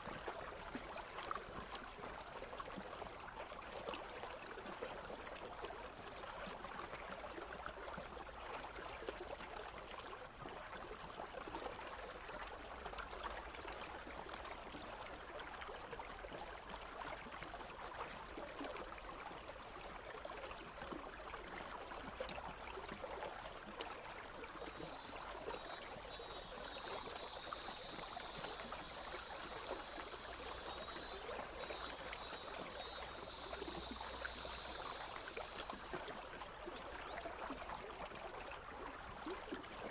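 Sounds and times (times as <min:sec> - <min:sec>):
stream babbling: 0:24.2 - 0:37.0
cicadas buzzing: 0:24.5 - 0:35.9.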